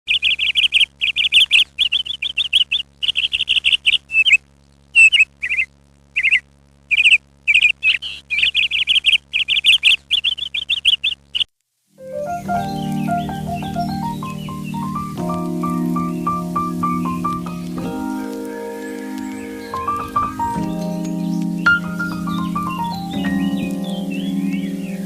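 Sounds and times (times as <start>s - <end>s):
faint low hum: 0.1s - 11.5s
small bird chirping: 0.1s - 11.5s, 12.1s - 25.0s.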